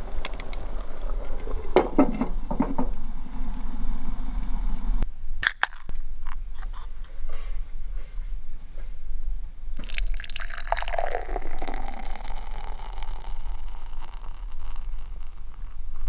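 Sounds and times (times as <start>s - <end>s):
liquid pouring and gurgling: 0.0s - 1.9s, 9.8s - 16.0s.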